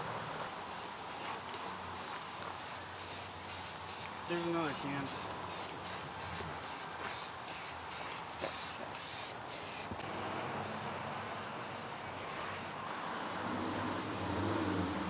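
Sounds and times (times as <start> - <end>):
aerosol spray can hissing: 0.7 - 15.0.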